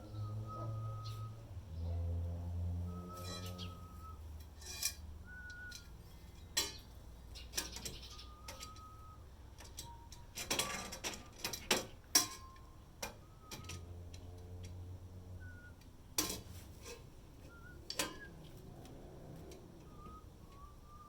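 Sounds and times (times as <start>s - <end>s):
short whistled notes: 2.9s - 4.2s, 5.2s - 6.0s, 17.5s - 18.4s, 19.8s - 21.0s
metal hardware and tools clinking: 3.2s - 3.8s, 4.6s - 9.0s, 9.6s - 14.8s, 16.2s - 19.6s.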